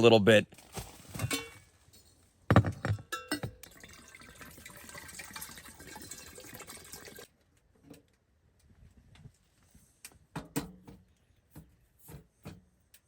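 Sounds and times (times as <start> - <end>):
water pouring into container: 3.6 - 7.3.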